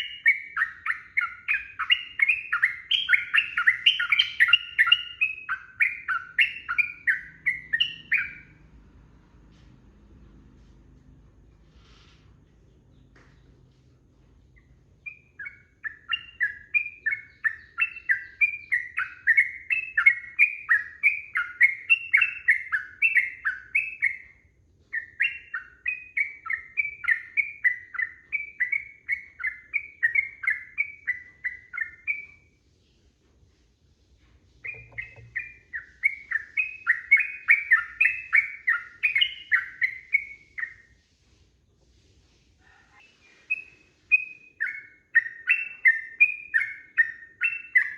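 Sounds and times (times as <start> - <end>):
bird singing bubbly chirps: 34.6 - 40.8.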